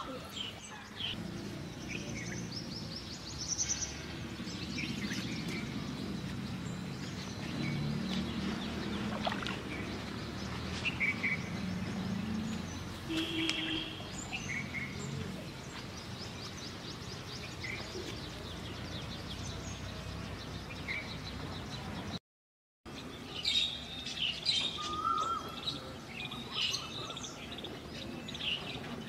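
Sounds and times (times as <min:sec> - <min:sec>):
birds chirping: 0:00.0 - 0:22.2
outdoor background noise: 0:00.0 - 0:22.2, 0:22.9 - 0:29.0.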